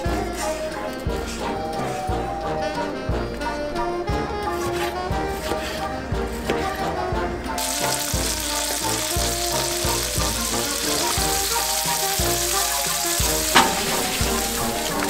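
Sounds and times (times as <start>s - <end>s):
tomatoes sizzling in hot oil: 7.6s - 15.0s.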